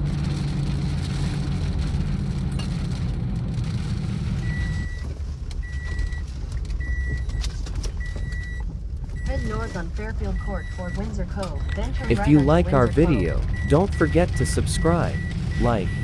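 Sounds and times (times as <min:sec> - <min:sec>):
steady low rumble: 0:08.2 - 0:16.0
electronic warning chime beeping: 0:09.2 - 0:16.0.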